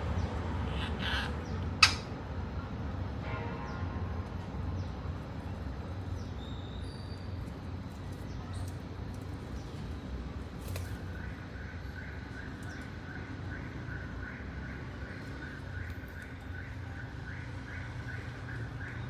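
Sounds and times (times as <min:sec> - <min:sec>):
parrot harsh calls: 0:00.6 - 0:02.1.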